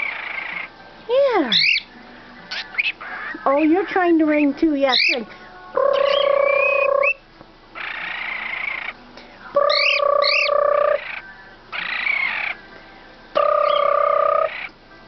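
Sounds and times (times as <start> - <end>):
bird raspy calls: 0.0 - 0.8, 1.5 - 1.9, 2.5 - 4.1, 5.8 - 7.2, 7.8 - 9.0, 9.6 - 12.6, 13.4 - 14.8
bird whistled chirps: 1.5 - 1.9, 9.6 - 11.2, 13.4 - 14.7
bird imitating telephone ring: 9.7 - 11.0, 13.4 - 14.6.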